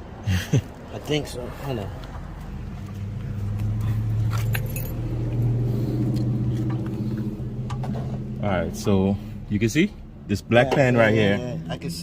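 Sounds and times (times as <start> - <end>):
car engine running: 2.4 - 12.0
light metallic clicks and jingles: 3.8 - 5.5.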